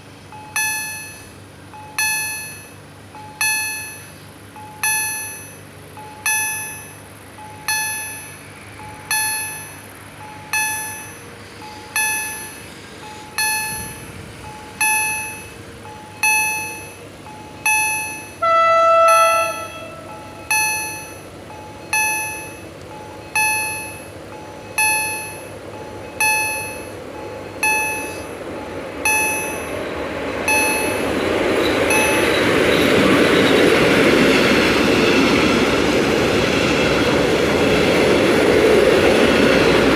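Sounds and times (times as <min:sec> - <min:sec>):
electric locomotive approaching: 0:00.0 - 0:39.9
electronic warning bell striking: 0:00.4 - 0:34.4
train horn: 0:18.4 - 0:20.5.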